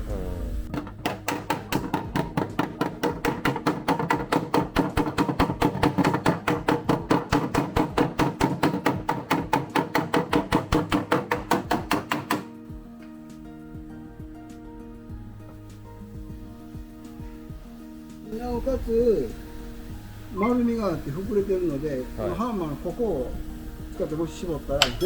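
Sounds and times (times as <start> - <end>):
background music: 0.0 - 25.0
hammer blows on steel panel: 0.7 - 12.6.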